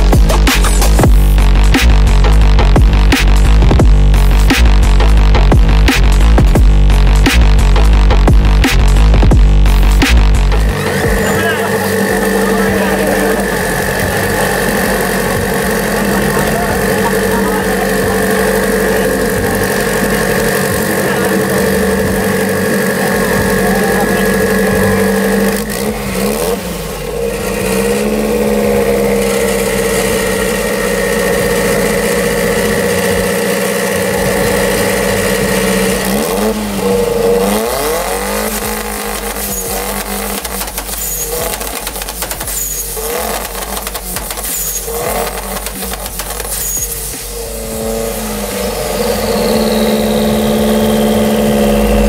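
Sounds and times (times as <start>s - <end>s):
turbocharged engine revving: 0.0s - 52.0s.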